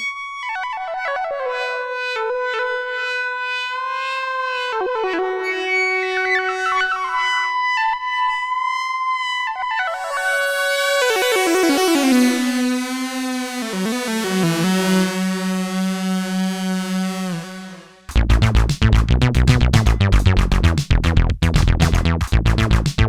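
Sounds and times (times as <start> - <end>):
synthesizer playing: 9.9 - 18.2.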